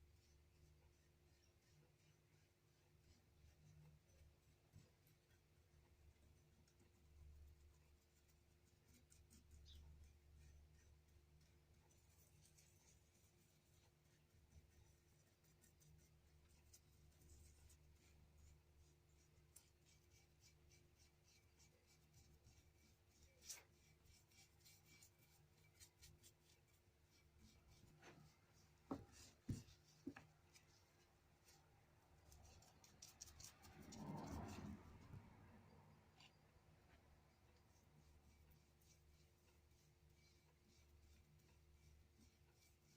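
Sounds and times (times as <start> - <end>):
brief rubbing sound: 32.6 - 35.4.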